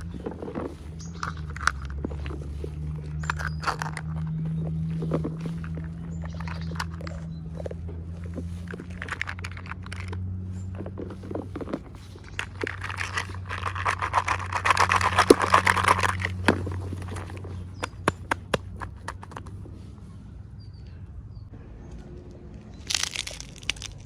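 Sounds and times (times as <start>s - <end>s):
plastic packaging clicks and rustle: 8.3s - 17.6s, 22.9s - 24.0s.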